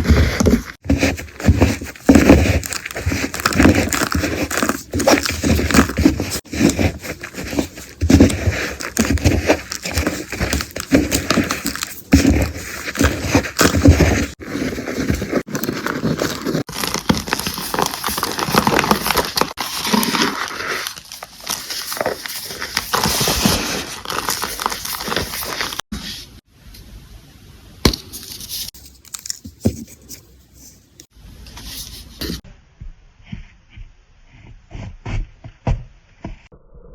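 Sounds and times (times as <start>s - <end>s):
crackling and crunching of crushing: 0.0s - 25.9s, 28.6s - 29.7s.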